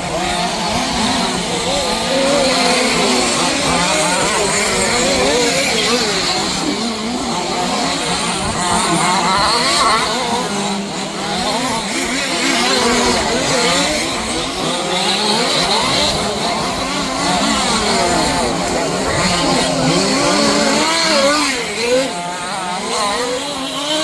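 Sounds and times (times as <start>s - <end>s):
small two-stroke rc car engines: 0.0s - 24.0s.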